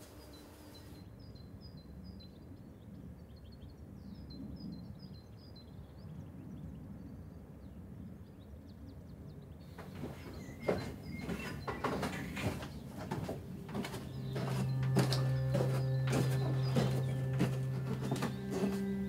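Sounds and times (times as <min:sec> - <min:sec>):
songbird high chirps: 0:09.8 - 0:12.8.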